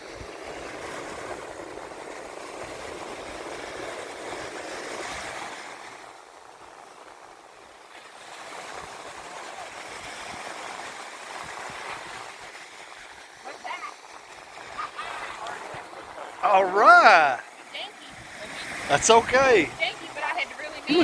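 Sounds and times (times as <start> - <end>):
surf washing on beach: 0.0 - 21.0.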